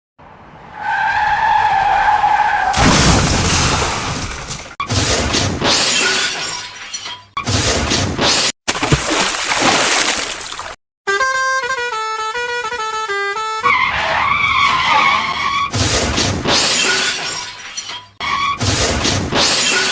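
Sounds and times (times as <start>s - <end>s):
crashing and shattering: 2.8s - 4.8s
high squeal: 13.7s - 15.8s.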